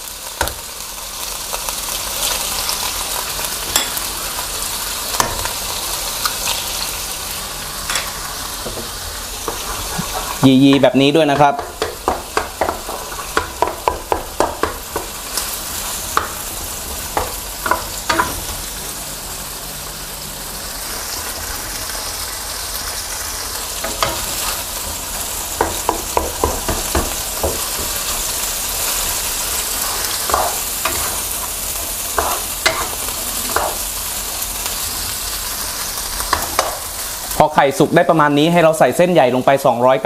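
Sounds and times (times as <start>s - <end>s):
eggs sizzling in hot oil: 0.0s - 40.0s
spatula scraping and tapping pan: 7.9s - 18.4s, 29.8s - 31.3s, 32.1s - 33.8s, 36.2s - 36.9s.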